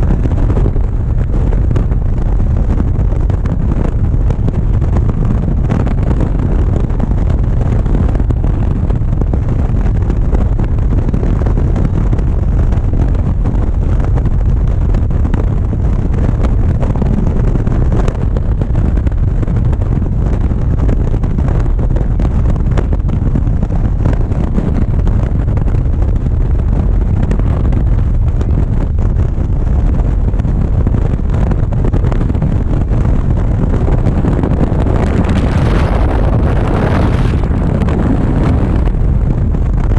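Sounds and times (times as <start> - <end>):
road noise: 0.0 - 39.9
wind buffeting microphone: 0.0 - 39.9.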